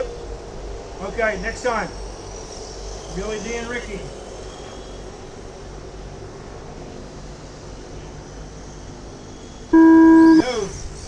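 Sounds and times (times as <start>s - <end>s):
low background noise: 5.5s - 10.7s
electronic start tone: 9.8s - 10.5s.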